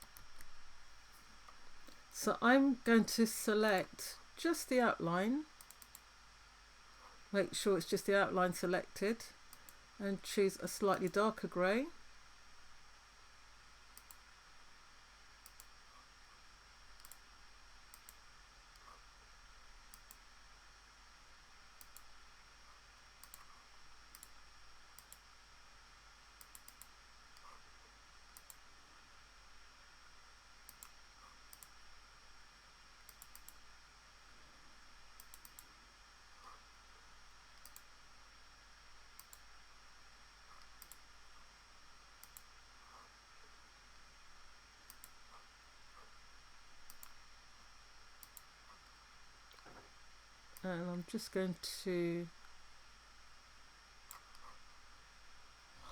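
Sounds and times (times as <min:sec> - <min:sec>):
computer mouse clicks: 0:00.0 - 0:02.1, 0:05.6 - 0:06.1, 0:09.5 - 0:09.8, 0:13.9 - 0:14.3, 0:15.4 - 0:15.8, 0:17.0 - 0:17.3, 0:17.9 - 0:19.0, 0:19.9 - 0:20.3, 0:21.8 - 0:22.2, 0:23.2 - 0:25.3, 0:26.4 - 0:27.6, 0:28.3 - 0:28.6, 0:30.6 - 0:31.8, 0:33.0 - 0:33.6, 0:35.2 - 0:35.7, 0:37.5 - 0:37.9, 0:39.1 - 0:39.5, 0:40.5 - 0:41.1, 0:42.2 - 0:43.0, 0:44.8 - 0:46.1, 0:46.8 - 0:47.2, 0:48.2 - 0:49.8, 0:54.1 - 0:54.6
faint high-pitched whine: 0:00.0 - 0:55.9.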